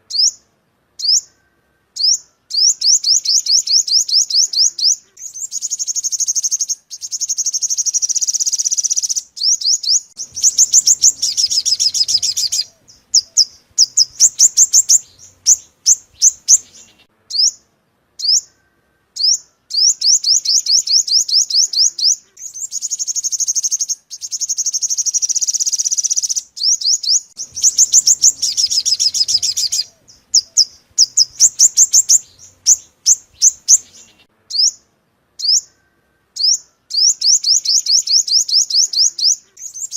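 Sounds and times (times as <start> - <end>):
sunbird song with fast trills: 0.0 - 39.9
sharp bird chips: 2.0 - 17.6, 19.2 - 34.8.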